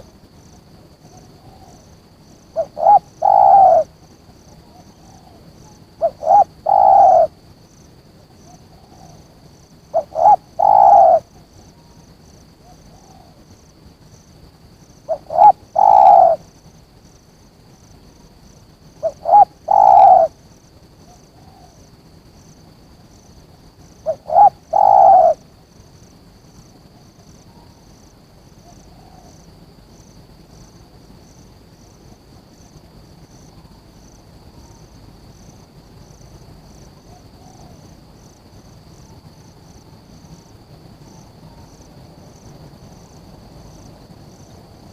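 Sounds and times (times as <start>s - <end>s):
insect chirping: 0.0s - 44.9s
dove cooing: 1.1s - 1.8s, 2.5s - 3.9s, 4.6s - 7.4s, 9.9s - 11.4s, 12.6s - 13.4s, 15.1s - 16.5s, 19.0s - 20.4s, 21.1s - 21.8s, 24.0s - 25.4s, 28.6s - 29.4s, 37.0s - 37.9s.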